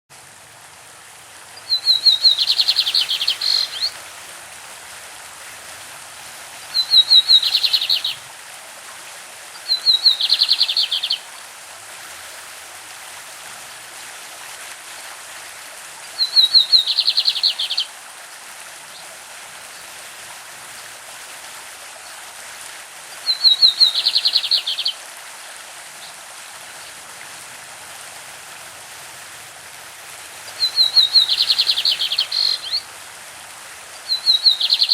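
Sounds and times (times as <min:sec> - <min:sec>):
stream rushing: 0:00.1 - 0:34.9
bird song with rattling trill: 0:01.7 - 0:03.9, 0:06.8 - 0:08.2, 0:16.2 - 0:17.8, 0:30.5 - 0:32.8, 0:34.1 - 0:34.9.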